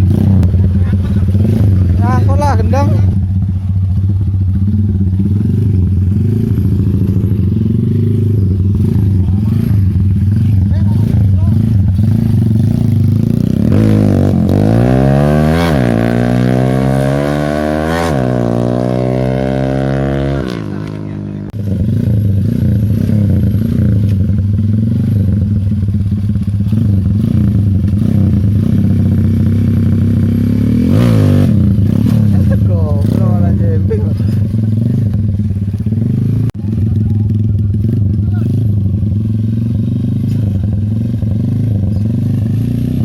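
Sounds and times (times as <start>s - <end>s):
motorcycle engine idling and revving: 0.0s - 43.0s.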